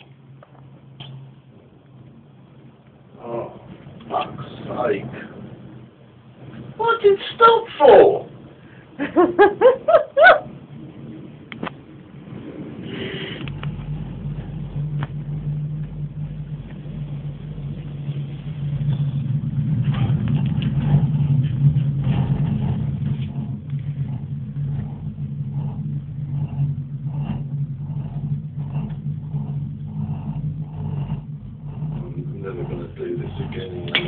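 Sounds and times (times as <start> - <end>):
cable car cabin hum and rumble: 0.0 - 34.0.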